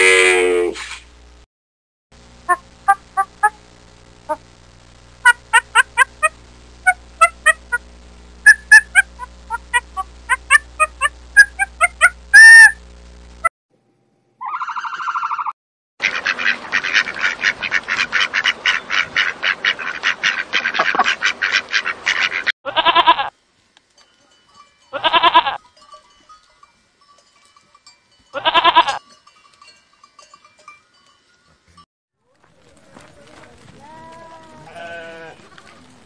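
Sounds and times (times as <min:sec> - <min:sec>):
turkey gobbling: 0:14.4 - 0:22.5
ducks quacking: 0:16.0 - 0:23.0
goat bleating: 0:22.7 - 0:23.3, 0:24.9 - 0:25.6, 0:28.4 - 0:29.0, 0:33.8 - 0:35.5.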